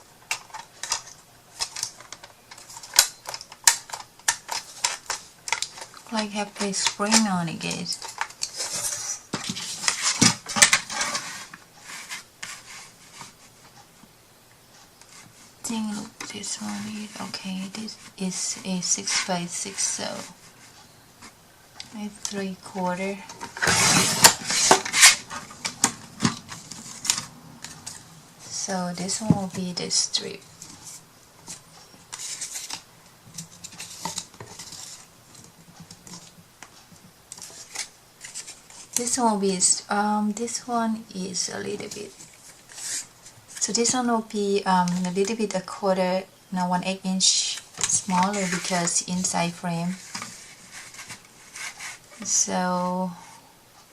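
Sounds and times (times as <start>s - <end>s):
paper scraping and rustling: 7.9s - 13.6s, 22.3s - 29.5s, 30.6s - 32.8s, 33.4s - 35.4s, 41.8s - 43.7s, 47.7s - 52.3s
paper rustling: 22.4s - 28.1s, 47.7s - 49.0s, 49.9s - 52.1s.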